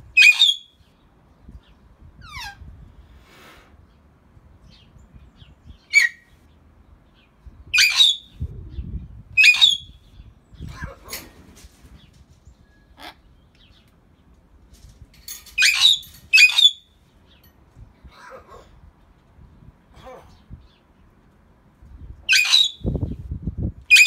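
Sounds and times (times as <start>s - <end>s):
mynahs squawking and whistling: 0.2s - 0.7s, 7.8s - 8.4s, 9.4s - 9.9s, 22.3s - 22.9s.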